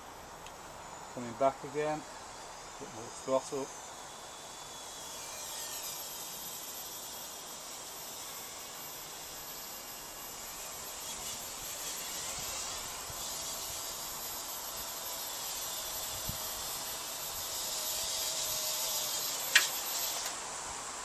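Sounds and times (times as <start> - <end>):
quadcopter rotors whining: 7.7 - 20.5.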